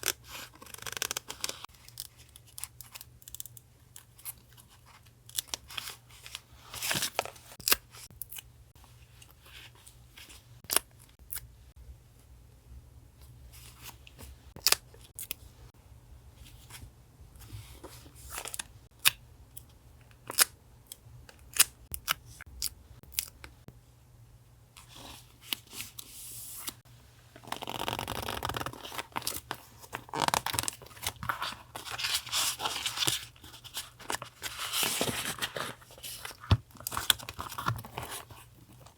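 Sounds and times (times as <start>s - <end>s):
paper rustling and tearing: 28.0s - 38.5s.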